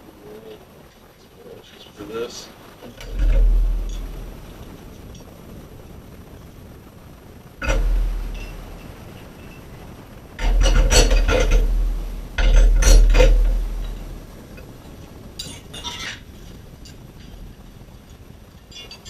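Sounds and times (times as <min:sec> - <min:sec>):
metal tools clanking on engine case: 0:07.6 - 0:08.9, 0:10.4 - 0:14.2.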